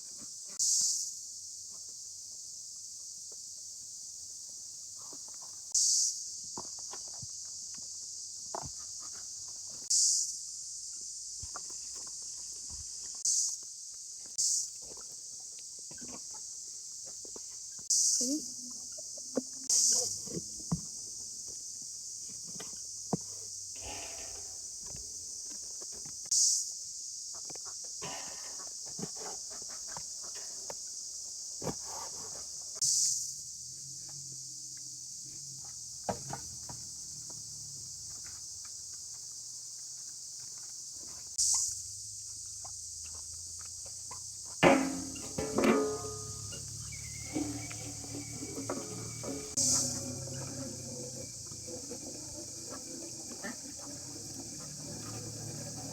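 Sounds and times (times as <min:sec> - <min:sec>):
insects chirring: 0:00.0 - 0:55.9
handling knocks and rustles: 0:44.6 - 0:51.6.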